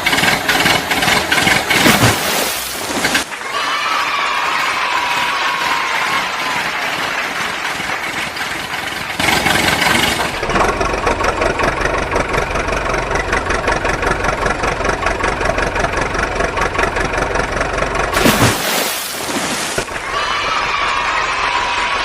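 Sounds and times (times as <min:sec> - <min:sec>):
vehicle engine idling: 0:00.0 - 0:03.4, 0:06.7 - 0:18.2.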